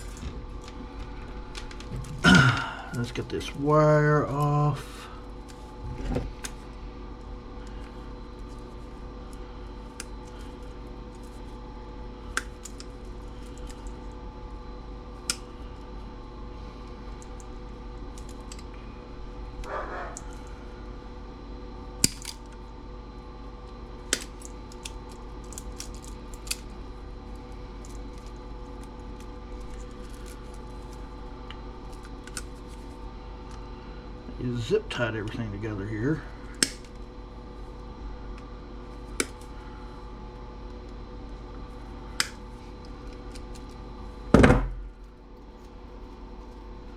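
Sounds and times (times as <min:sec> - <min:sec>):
steady low hum: 0:00.0 - 0:46.9
wire cutters snipping: 0:36.6 - 0:37.0.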